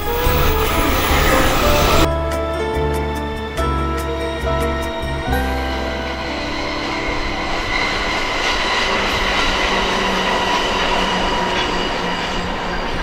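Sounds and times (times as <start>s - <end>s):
train wheels on rails: 0.0s - 2.1s, 6.0s - 13.0s.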